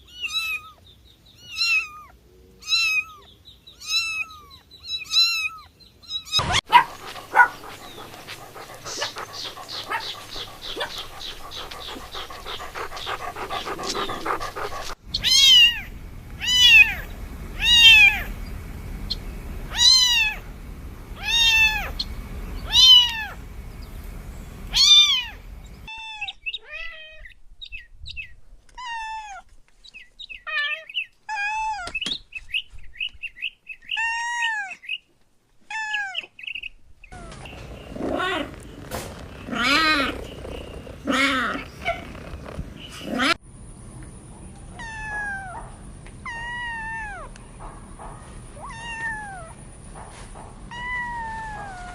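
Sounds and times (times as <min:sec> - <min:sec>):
cats meowing: 0:05.1 - 0:18.4, 0:19.1 - 0:20.5, 0:21.2 - 0:23.4, 0:24.7 - 0:25.4, 0:48.6 - 0:49.5, 0:50.7 - 0:51.9.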